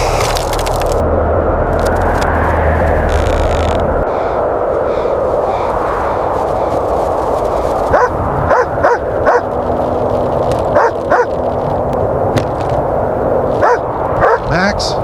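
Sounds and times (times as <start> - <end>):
wind rushing: 0.0 - 15.0
dog barking: 7.9 - 9.5, 10.7 - 11.4, 13.6 - 14.5.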